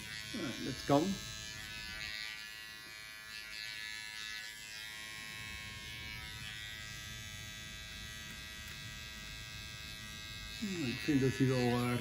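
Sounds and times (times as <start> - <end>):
electric beard clipper buzzing: 0.0 - 12.0.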